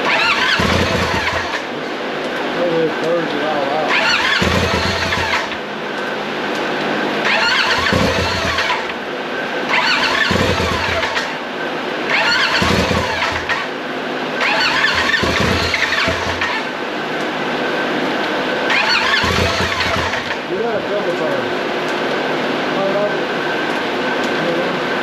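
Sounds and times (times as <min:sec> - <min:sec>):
engine starter cranking with whine: 0:00.0 - 0:01.8, 0:02.6 - 0:05.6, 0:07.2 - 0:09.0, 0:09.6 - 0:11.4, 0:12.0 - 0:16.8, 0:18.6 - 0:20.6.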